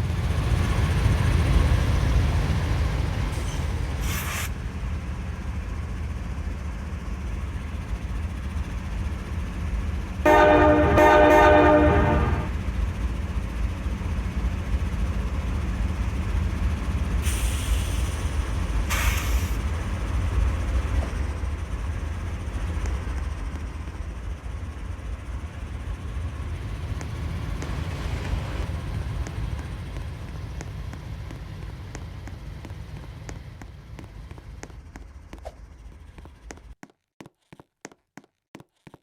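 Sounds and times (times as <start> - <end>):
freight train rumbling: 0.0 - 36.8
short hissing bursts: 4.0 - 4.5, 17.2 - 19.6.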